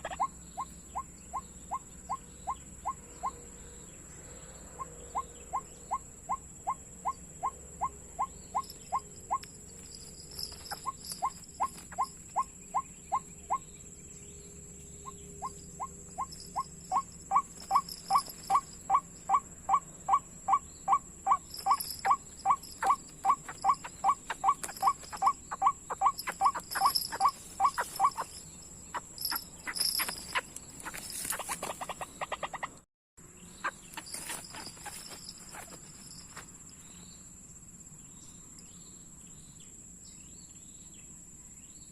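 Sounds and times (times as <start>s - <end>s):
waterhen calls: 0.0s - 3.4s, 10.4s - 13.6s, 15.4s - 32.8s
rustling and clicking: 26.1s - 32.1s, 33.9s - 36.6s.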